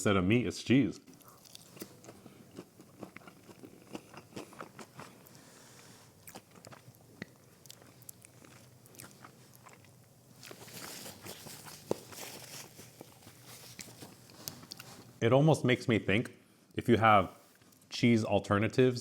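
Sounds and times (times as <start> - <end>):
crunchy chewing: 1.1 - 15.2.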